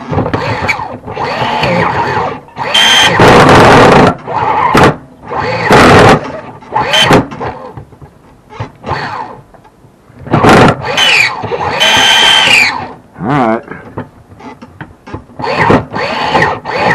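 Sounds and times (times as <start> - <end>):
nitro engine starter whirring: 0.0 - 7.8, 8.5 - 9.4, 10.3 - 13.0, 15.4 - 16.9.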